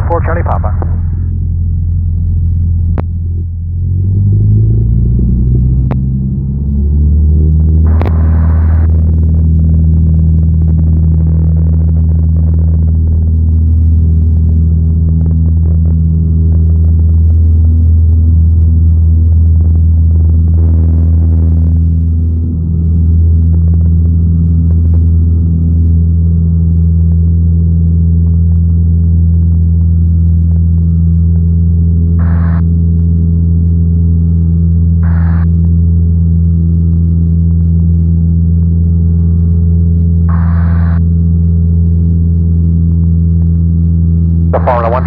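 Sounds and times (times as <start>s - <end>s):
airplane engine and propeller drone: 0.0s - 45.0s
click: 5.9s - 6.1s, 8.0s - 8.2s.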